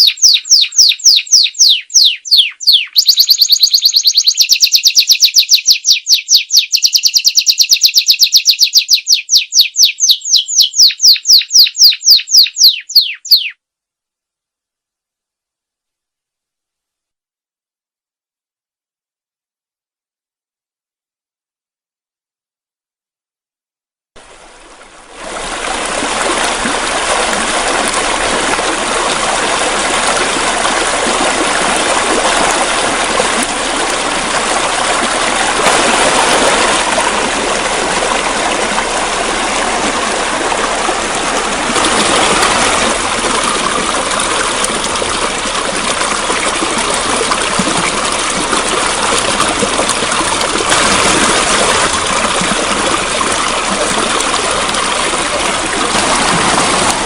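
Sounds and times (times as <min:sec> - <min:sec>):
flowing water rushing: 0:24.2 - 0:57.0.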